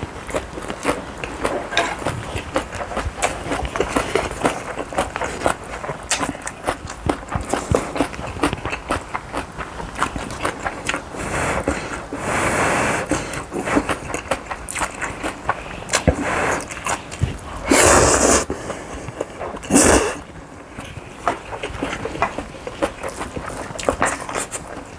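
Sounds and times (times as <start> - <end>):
chewing: 0.0 - 24.9
utensils clicking and tapping: 1.7 - 2.2.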